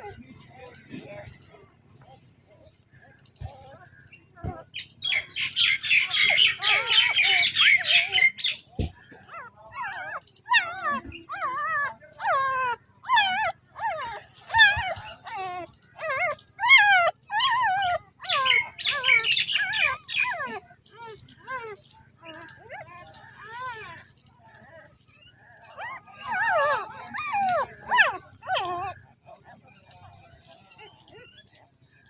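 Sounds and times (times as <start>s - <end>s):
puppies squeaking: 0.0s - 29.1s
puppies whimpering cries: 0.0s - 32.0s.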